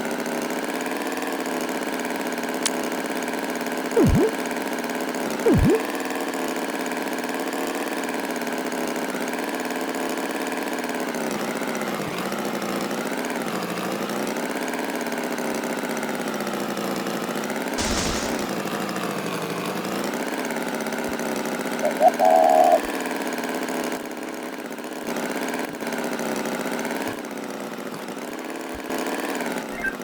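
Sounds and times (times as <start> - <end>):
engine rough burst: 17.8 - 19.2.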